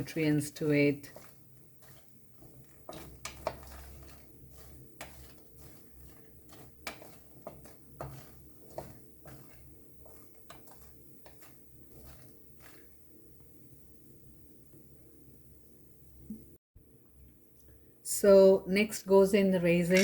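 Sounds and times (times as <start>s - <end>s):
spoon and nuts clicking in pan: 2.4s - 11.5s.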